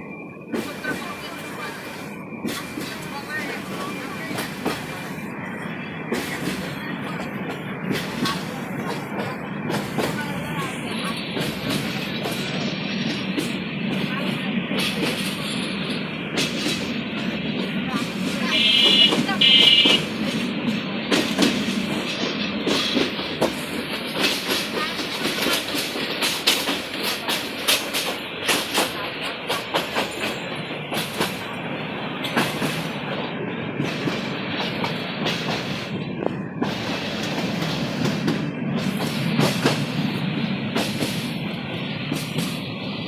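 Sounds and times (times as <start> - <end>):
train rumble: 0.0 - 43.0
train wheels clacking over rail joints: 0.5 - 5.2, 6.1 - 31.6, 32.2 - 33.2, 33.8 - 42.6.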